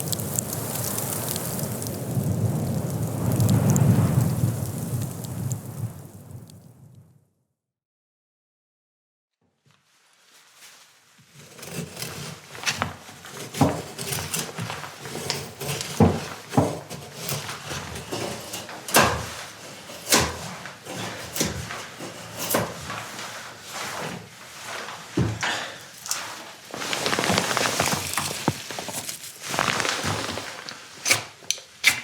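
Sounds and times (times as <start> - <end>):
low rustle: 0.0 - 7.0, 9.7 - 18.6, 22.8 - 31.0.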